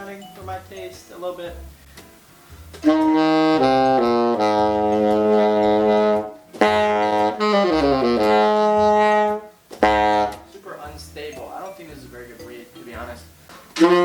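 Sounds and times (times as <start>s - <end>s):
saxophone held notes: 2.8s - 10.6s, 13.8s - 14.0s.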